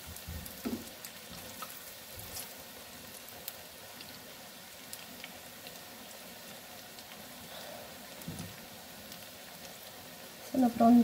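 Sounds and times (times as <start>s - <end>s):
fritters sizzling in oil: 0.0s - 11.0s
oil popping and crackling: 0.0s - 11.0s.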